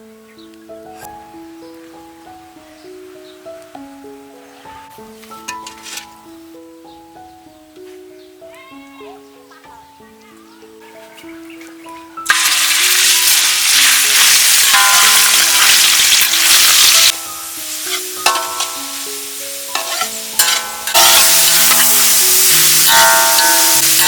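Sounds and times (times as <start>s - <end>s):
food sizzling in hot oil: 12.3s - 24.0s.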